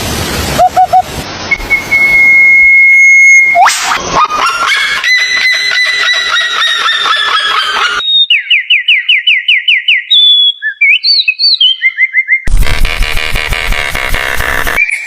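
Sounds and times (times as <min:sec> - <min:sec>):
repeated bird calls: 0:05.4 - 0:12.5.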